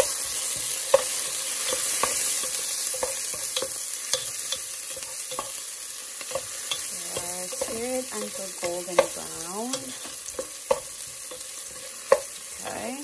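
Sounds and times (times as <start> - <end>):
onions sizzling in hot oil: 0.0 - 13.0
wooden spoon knocking metal pot: 6.4 - 12.9.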